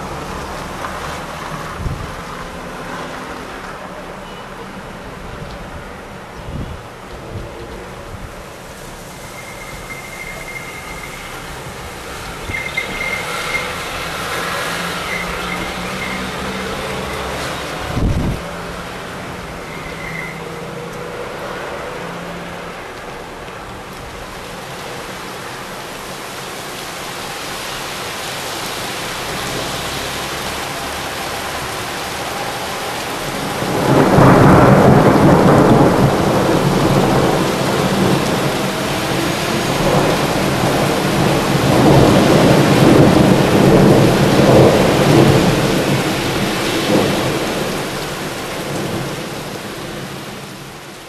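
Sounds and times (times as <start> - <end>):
steady rain: 0.0 - 51.0
thunder peal: 33.3 - 47.8.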